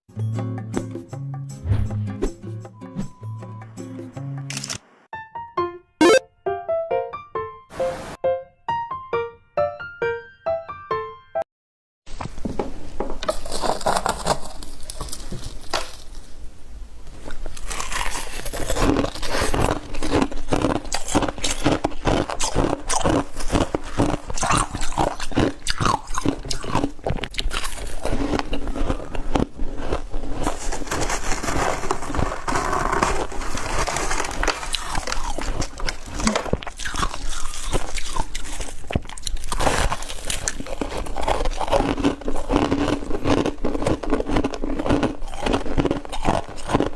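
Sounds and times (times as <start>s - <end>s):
person crunching ice: 13.3s - 16.2s, 17.3s - 46.9s.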